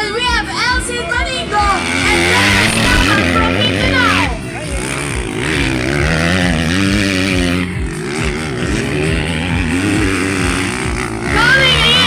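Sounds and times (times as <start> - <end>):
motocross bikes engines revving: 0.0 - 12.0.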